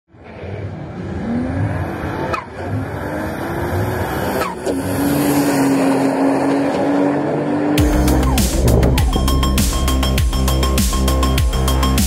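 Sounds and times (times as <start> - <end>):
car engine accelerating hard: 0.1 - 10.2.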